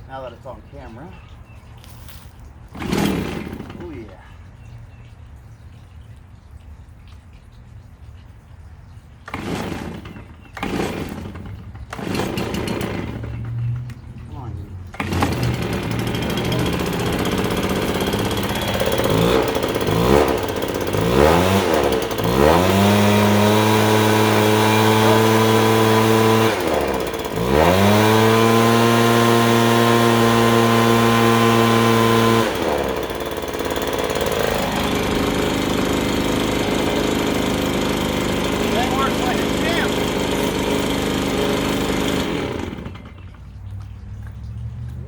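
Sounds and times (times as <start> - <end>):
leaf blower engine revving: 1.8 - 4.3, 9.3 - 13.9, 14.9 - 43.4.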